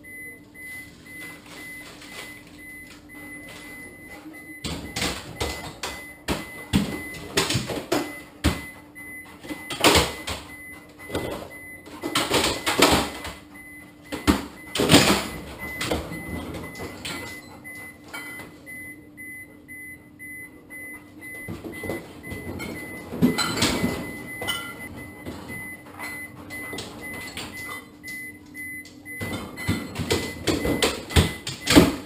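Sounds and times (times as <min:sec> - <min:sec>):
clunks and knocks: 0:04.5 - 0:18.8, 0:20.7 - 0:32.0.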